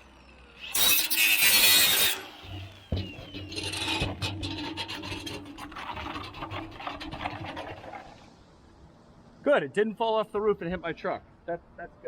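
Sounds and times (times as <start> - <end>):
sheet metal scraping: 0.7 - 8.2.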